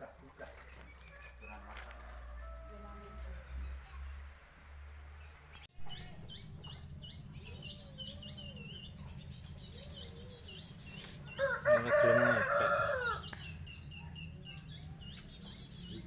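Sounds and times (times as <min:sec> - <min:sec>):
pet bird chirping: 0:02.4 - 0:11.6, 0:12.5 - 0:16.0.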